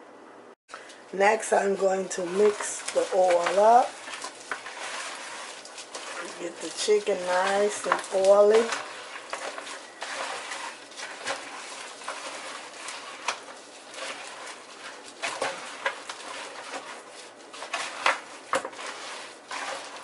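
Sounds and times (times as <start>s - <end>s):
wet squishing of chicken in oil: 0.8s - 20.0s.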